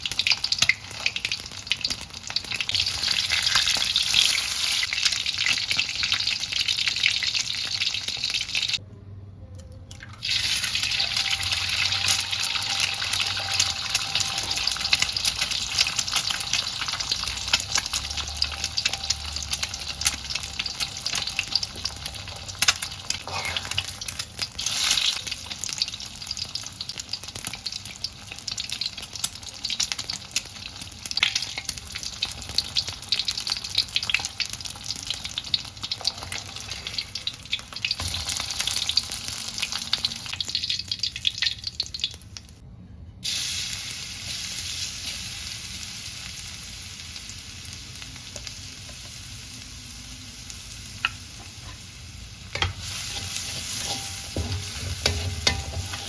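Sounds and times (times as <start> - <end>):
food sizzling in a pan: 0.0 - 8.8, 10.2 - 42.5, 43.2 - 56.0
spatula scraping a pan: 23.1 - 24.0, 52.6 - 56.0.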